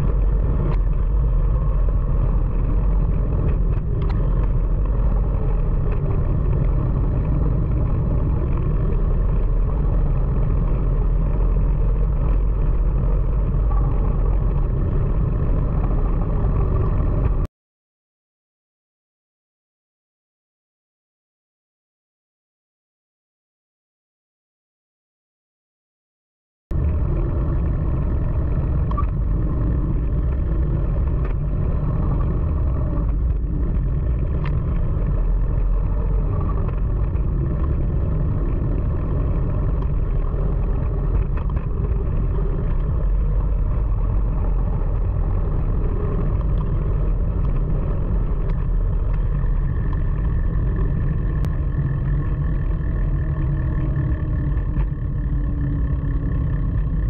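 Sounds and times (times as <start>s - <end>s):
wind buffeting microphone: 26.8s - 57.0s.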